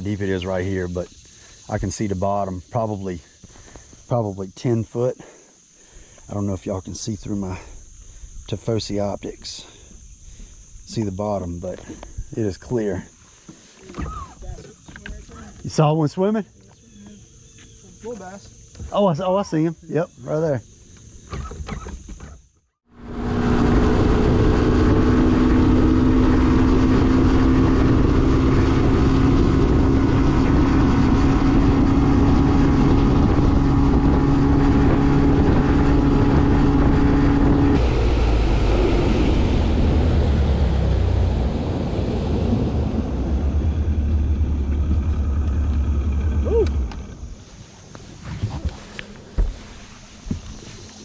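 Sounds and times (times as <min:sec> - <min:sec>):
wind noise on microphone: 0:23.0 - 0:45.1
outboard motor running: 0:23.0 - 0:47.4.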